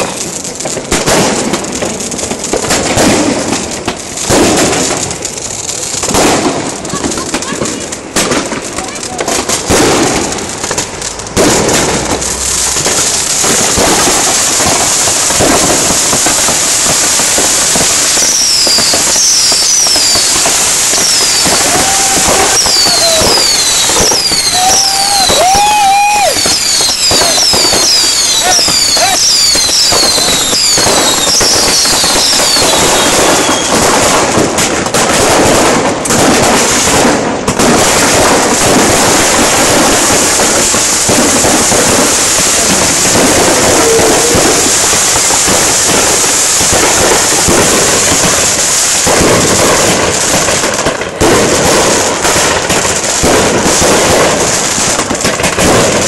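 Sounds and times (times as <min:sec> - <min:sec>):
firecracker bangs and crackling: 0:00.0 - 0:56.0
high falling firework whistles: 0:10.9 - 0:34.4, 0:37.9 - 0:50.4.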